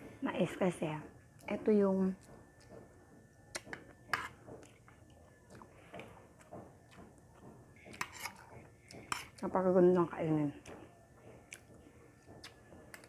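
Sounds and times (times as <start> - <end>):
chewing rice and vegetables: 1.3 - 13.0.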